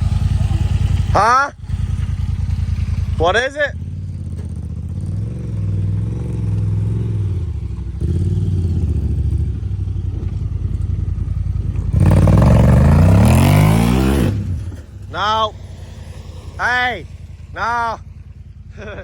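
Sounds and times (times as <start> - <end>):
engine revving under strain: 4.2 - 10.7, 11.6 - 18.0.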